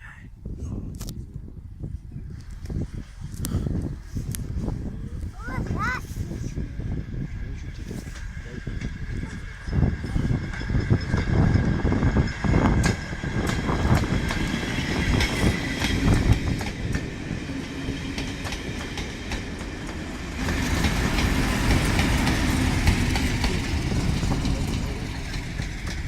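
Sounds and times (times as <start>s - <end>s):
train running rumble: 2.4s - 26.0s
wheels clattering over rail joints: 8.0s - 26.0s.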